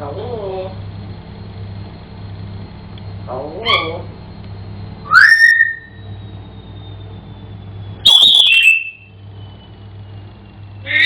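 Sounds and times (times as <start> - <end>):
parrot whistling: 3.6 - 4.0, 5.0 - 6.3, 8.0 - 9.1, 10.8 - 11.0.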